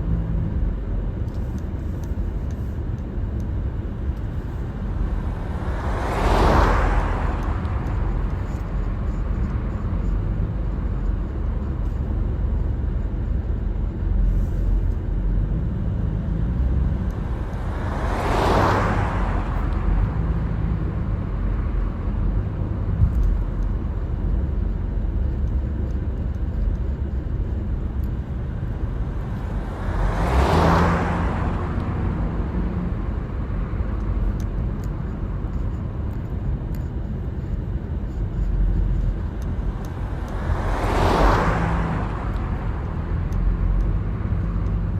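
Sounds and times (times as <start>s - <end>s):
car road rumble: 0.0s - 44.9s
passing vehicles whooshing: 1.6s - 44.9s.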